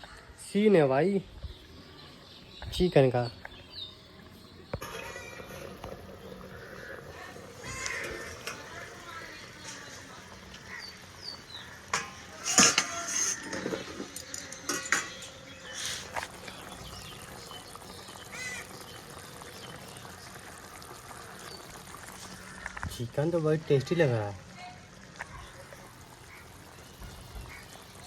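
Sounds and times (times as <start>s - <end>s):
cooking pot and utensils clattering: 4.7s - 18.3s
metal knocks and scrapes: 11.9s - 16.2s.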